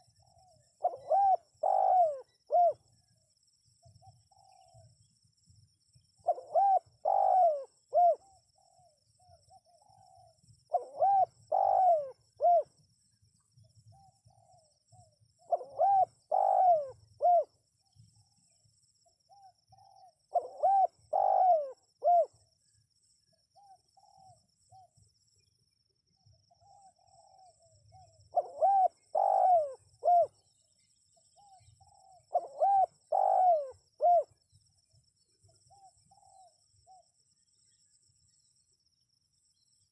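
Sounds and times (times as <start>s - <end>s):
dove cooing: 0.0s - 2.9s, 6.2s - 12.7s, 13.9s - 17.5s, 19.3s - 22.4s, 23.6s - 24.9s, 26.5s - 30.4s, 31.4s - 34.4s.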